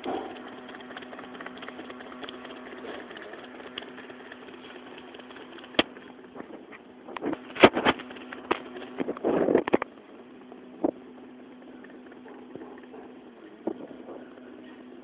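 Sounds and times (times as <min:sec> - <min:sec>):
machine clicks: 0:00.0 - 0:06.3
small motors humming: 0:00.0 - 0:15.0.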